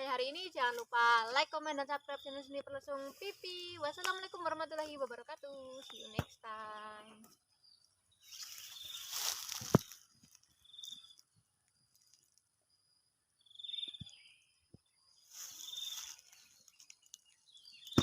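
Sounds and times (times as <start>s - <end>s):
bird buzzy chirp: 7.6s - 9.9s, 13.4s - 18.0s.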